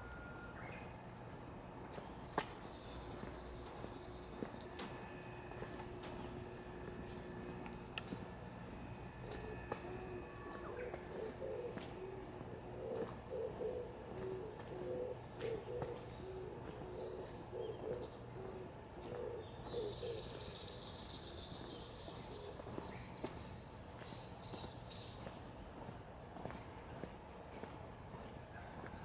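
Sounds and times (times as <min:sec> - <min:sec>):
dove cooing: 0:06.0 - 0:20.6, 0:21.7 - 0:22.8
songbird chattering song: 0:09.2 - 0:25.5.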